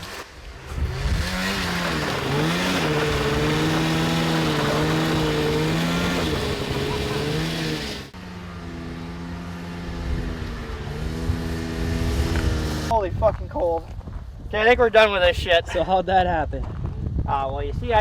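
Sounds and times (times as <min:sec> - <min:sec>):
steady engine hum: 0:00.0 - 0:12.9
two-stroke engine revving: 0:00.0 - 0:12.9.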